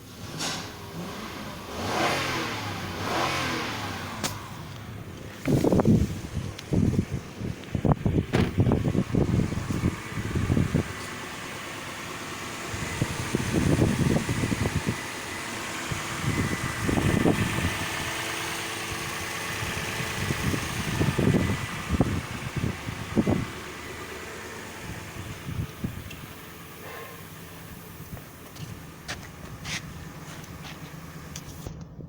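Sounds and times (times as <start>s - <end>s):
car engine idling: 0.0s - 32.0s
wind rumble on microphone: 5.0s - 11.1s, 12.7s - 15.2s, 15.9s - 23.8s, 24.8s - 26.3s.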